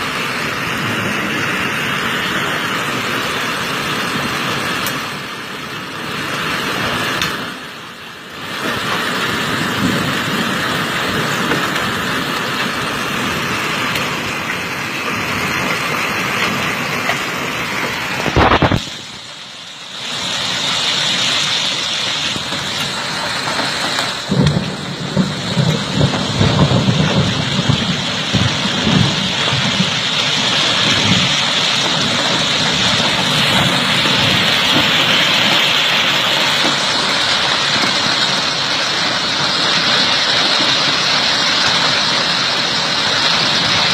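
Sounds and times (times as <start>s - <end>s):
hail and rain pelting: 0.0s - 43.9s
heavy hail thuds: 21.2s - 43.9s.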